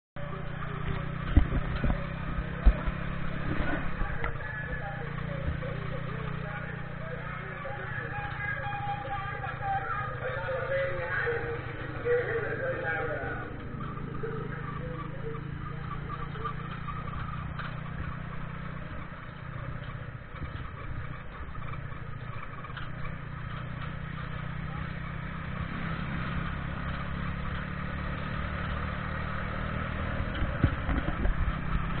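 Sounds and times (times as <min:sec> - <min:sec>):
small motorcycle engine running: 0:00.2 - 0:32.0
low thumps: 0:00.8 - 0:05.9.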